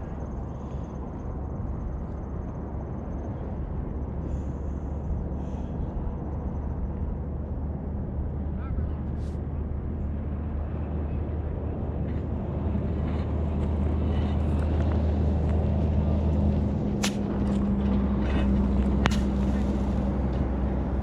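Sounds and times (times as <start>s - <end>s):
engine idling: 14.0s - 21.0s
sharp crack: 17.0s - 17.7s, 19.0s - 20.1s.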